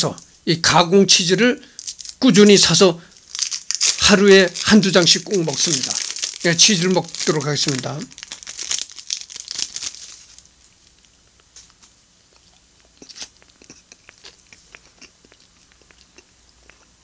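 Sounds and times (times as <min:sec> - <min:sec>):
plastic wrapper crinkling: 0:01.6 - 0:12.0
quiet chewing: 0:10.7 - 0:17.0
soft mouth clicks: 0:12.3 - 0:17.0.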